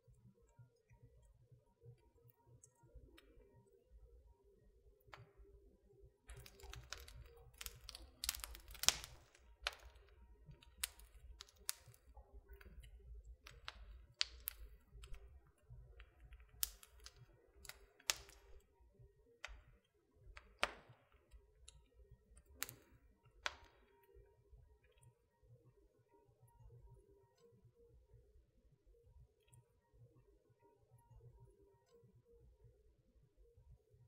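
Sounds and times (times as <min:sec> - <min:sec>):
wood fire crackling: 0:06.2 - 0:25.0.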